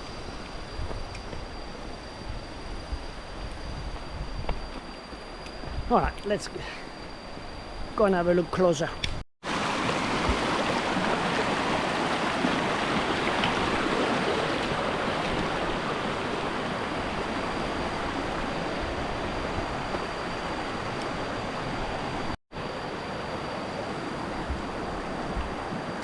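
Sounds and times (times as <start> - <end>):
waterfall and stream rushing: 9.4 - 26.0.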